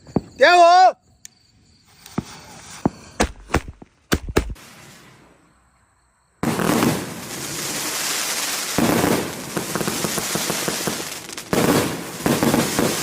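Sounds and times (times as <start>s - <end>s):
fireworks pops bangs and crackling: 2.0s - 4.8s, 6.4s - 13.0s.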